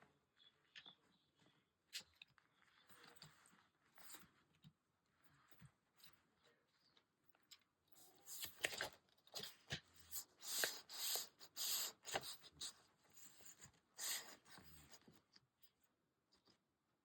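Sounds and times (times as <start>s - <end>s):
paper rustling and crinkling: 8.3s - 11.2s.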